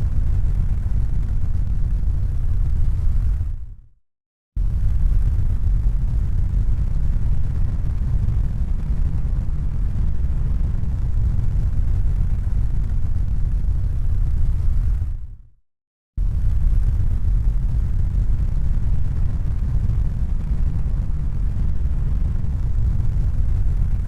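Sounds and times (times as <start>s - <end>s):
low rumbling noise: 0.0s - 3.9s, 4.6s - 15.5s, 16.2s - 24.0s.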